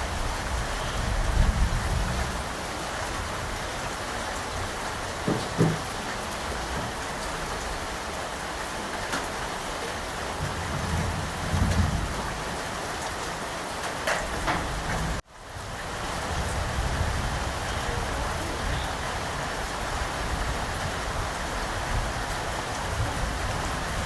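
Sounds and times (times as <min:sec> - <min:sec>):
steady rain falling: 0:00.0 - 0:24.0
distant thunder rumble: 0:10.2 - 0:13.2.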